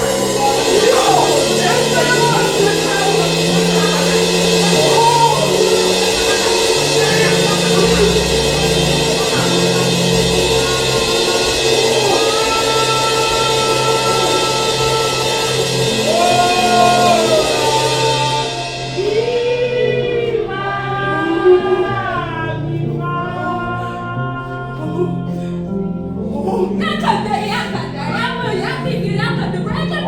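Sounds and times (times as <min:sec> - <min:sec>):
drums and cymbals: 0:00.0 - 0:20.5
bass line: 0:00.0 - 0:30.0
live gospel band: 0:00.0 - 0:30.0.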